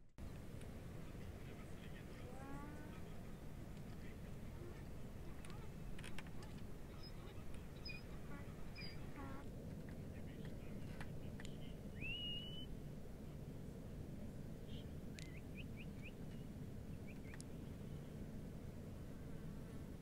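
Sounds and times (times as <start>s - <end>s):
bird calls: 6.9s - 9.4s, 14.7s - 17.7s
rising held whistle: 12.0s - 12.7s
faint sharp clicks: 15.1s - 15.4s, 17.1s - 17.6s.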